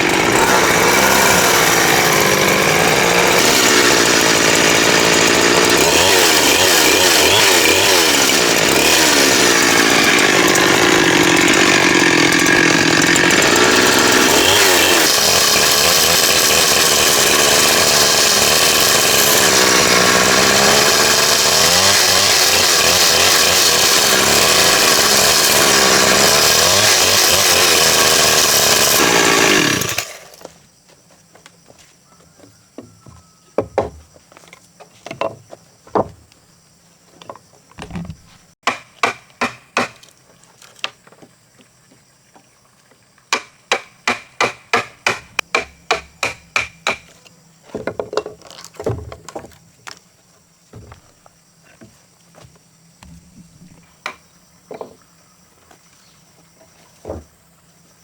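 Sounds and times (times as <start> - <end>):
chainsaw cutting timber: 0.0 - 30.5, 35.9 - 36.1, 37.8 - 40.9, 43.3 - 47.2, 47.8 - 50.0, 50.8 - 51.0, 53.0 - 55.0.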